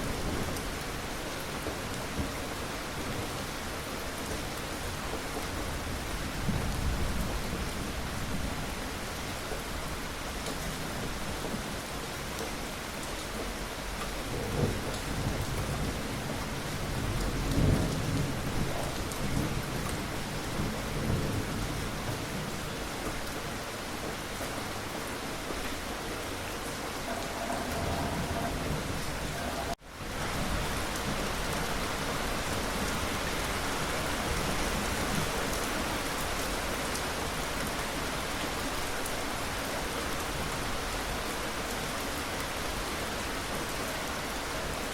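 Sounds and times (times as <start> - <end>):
steady rain: 0.0 - 44.9
low thunder rumbling: 26.1 - 31.3.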